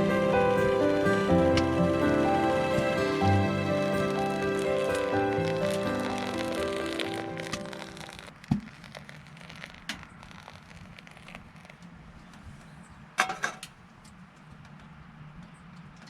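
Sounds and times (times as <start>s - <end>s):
background music: 0.0s - 8.2s.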